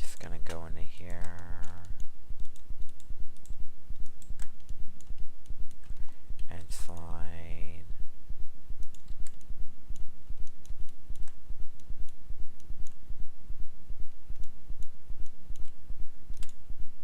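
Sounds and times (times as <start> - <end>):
mouse and keyboard clicks: 0.2 - 7.1, 14.1 - 16.6.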